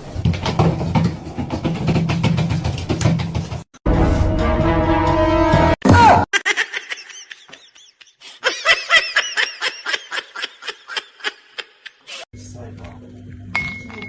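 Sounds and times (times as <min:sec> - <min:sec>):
music: 0:03.9 - 0:05.8
high-pitched laughter: 0:06.3 - 0:12.3.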